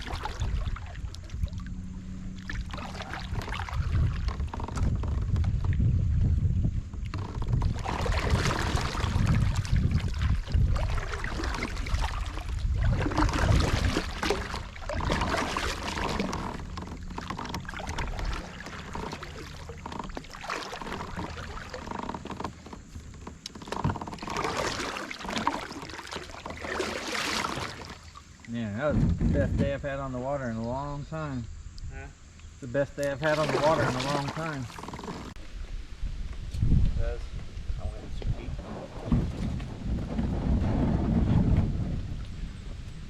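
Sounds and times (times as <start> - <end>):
wind rumble on microphone: 0.0 - 25.6, 28.5 - 32.2, 33.2 - 43.0
kayak paddle splashing: 0.0 - 30.9, 32.6 - 35.7.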